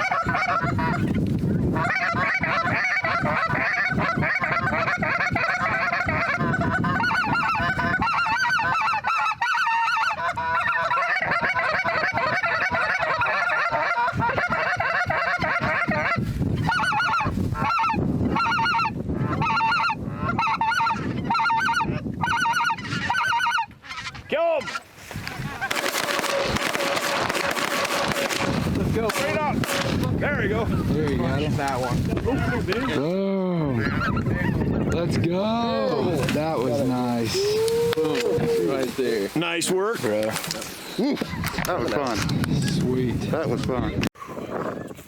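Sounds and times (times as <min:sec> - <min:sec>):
geese honking: 0:00.0 - 0:01.1, 0:01.8 - 0:33.1.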